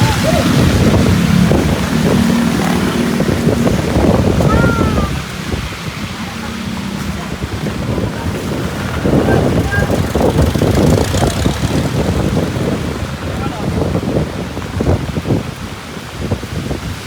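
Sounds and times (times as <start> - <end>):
heavy rain hissing: 0.0 - 16.8
vehicle engines in traffic: 0.0 - 17.0
wind buffeting microphone: 0.0 - 17.0.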